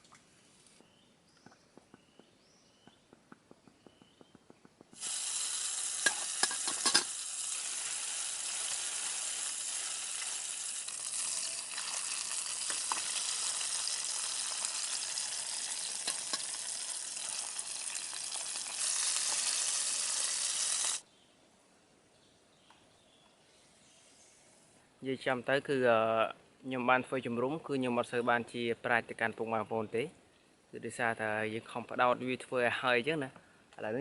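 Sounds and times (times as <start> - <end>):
sharp crackles and pops: 2.9 - 21.0
food sizzling in a pan: 5.0 - 21.0.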